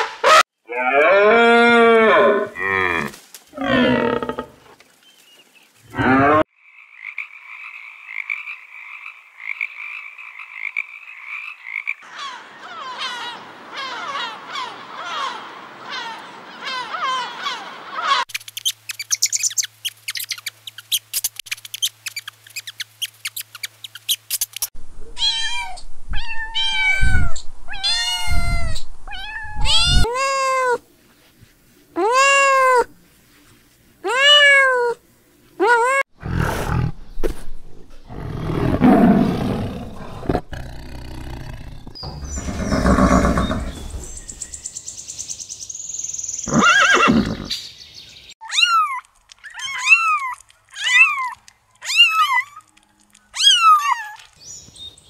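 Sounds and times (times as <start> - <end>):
gulls calling: 12.0 - 24.3
cat meowing: 25.2 - 30.8
tiger growling: 36.2 - 44.2.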